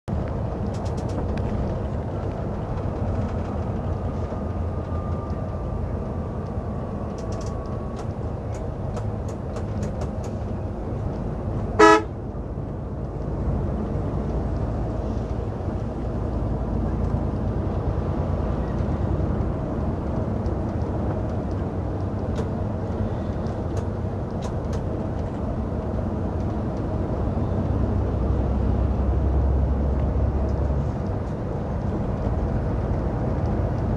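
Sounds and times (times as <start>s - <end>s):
rumble of road vehicles: 0.0s - 33.9s
loud horn honk: 11.8s - 12.2s.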